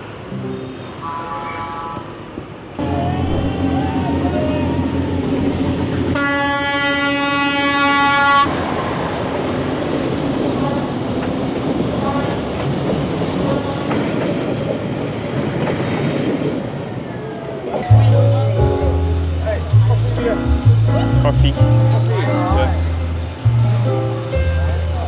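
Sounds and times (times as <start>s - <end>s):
train horn blast: 1.0s - 2.1s, 6.2s - 8.8s
train wheels rumbling and clattering: 8.8s - 16.9s, 17.8s - 25.0s.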